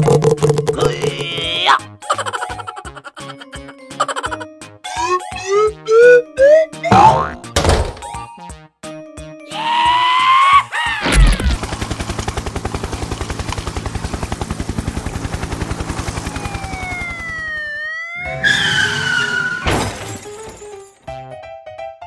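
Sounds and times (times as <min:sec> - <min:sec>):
wavering wail: 0:16.2 - 0:18.6.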